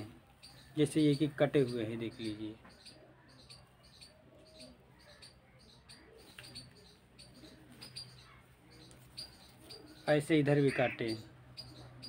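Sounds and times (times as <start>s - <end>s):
faint small birds chirping: 0.0s - 12.0s.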